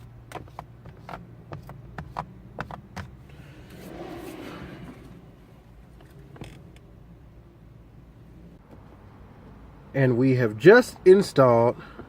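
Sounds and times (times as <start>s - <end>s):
short rustling scrape: 3.2s - 5.7s.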